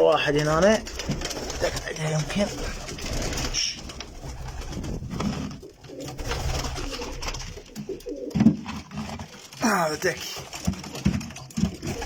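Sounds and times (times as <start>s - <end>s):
pigeons cooing: 0.8s - 9.6s, 10.5s - 12.0s.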